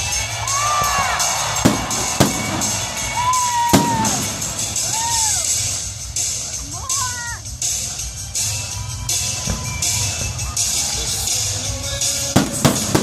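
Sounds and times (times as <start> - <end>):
fireworks bangs with echo: 0.0 - 5.3, 9.4 - 13.0
crowd noise: 0.0 - 13.0
music: 0.0 - 13.0.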